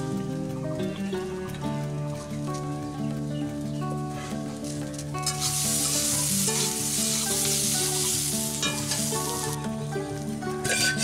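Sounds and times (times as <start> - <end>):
spatula stirring in wok: 5.2 - 9.4, 10.6 - 11.0
potatoes sizzling in oil: 5.2 - 11.0.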